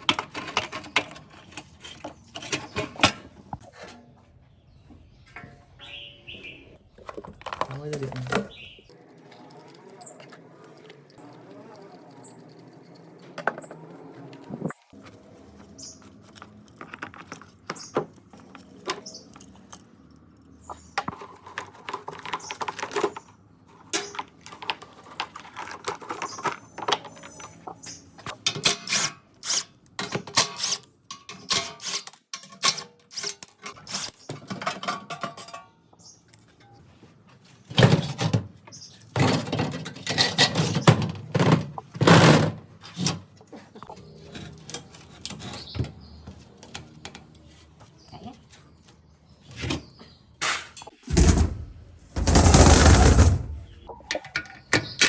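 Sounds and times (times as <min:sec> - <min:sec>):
metal tools clinking: 0:23.9 - 0:37.0.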